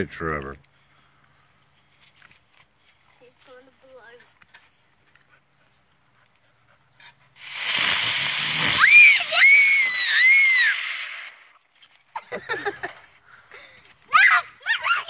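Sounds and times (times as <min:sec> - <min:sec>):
firework hissing: 0:07.3 - 0:11.6
firework whistle wavering: 0:07.4 - 0:11.5.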